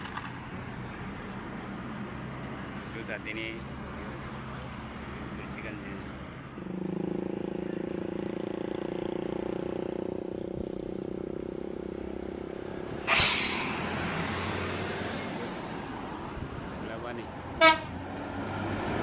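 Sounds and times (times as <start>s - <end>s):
loud hiss of air: 13.1s - 13.9s.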